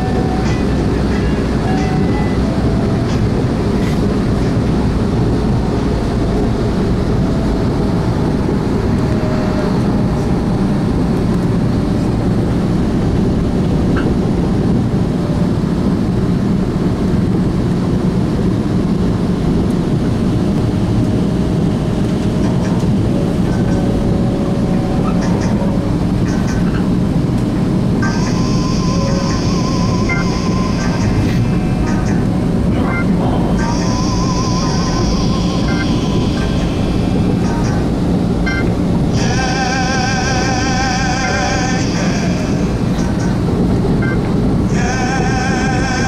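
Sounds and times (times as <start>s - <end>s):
train wheels rumbling on rail: 0.0s - 46.0s
faint steady whine: 17.6s - 46.0s.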